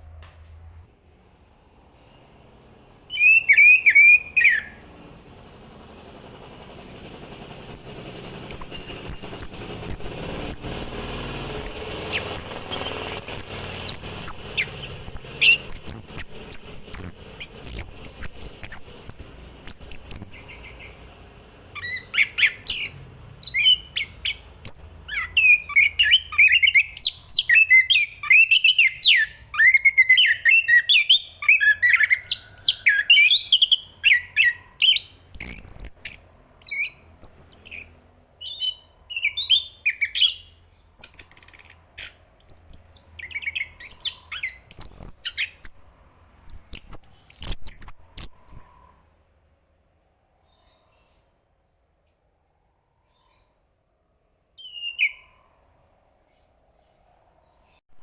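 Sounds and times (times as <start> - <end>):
thrush high rapid twittering: 2.4 - 27.5, 35.3 - 36.3, 37.2 - 38.0, 41.0 - 43.2, 43.8 - 49.0.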